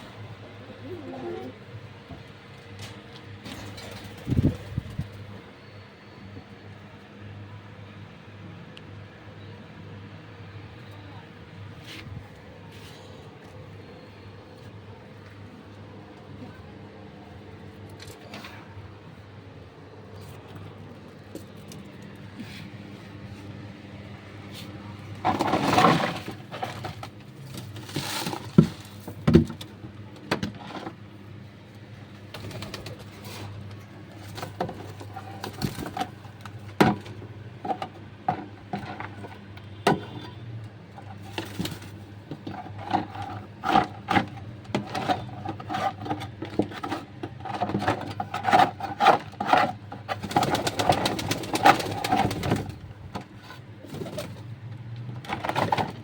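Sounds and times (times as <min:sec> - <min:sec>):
pigeons cooing: 0:00.4 - 0:01.8.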